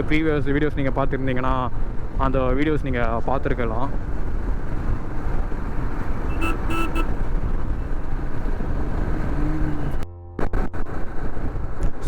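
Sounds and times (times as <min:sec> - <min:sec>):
motorcycle road and wind rumble: 0:00.0 - 0:12.0
vehicle horn toots: 0:06.3 - 0:07.2.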